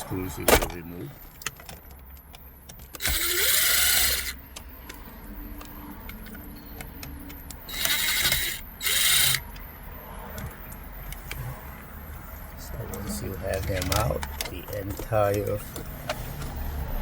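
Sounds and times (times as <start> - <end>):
cordless power screwdriver: 3.0 - 4.4, 7.7 - 9.4.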